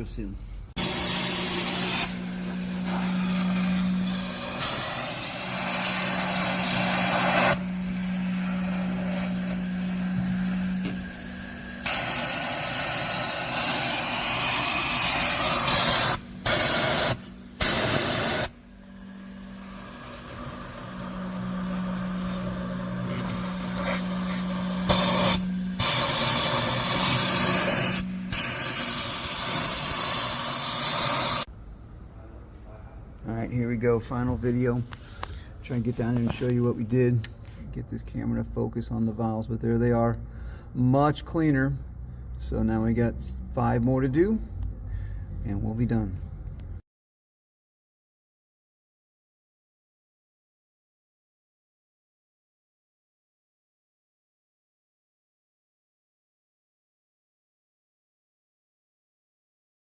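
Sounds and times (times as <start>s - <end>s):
steady low hum: 0.0s - 46.8s
vacuum cleaner hose hissing: 0.8s - 31.5s.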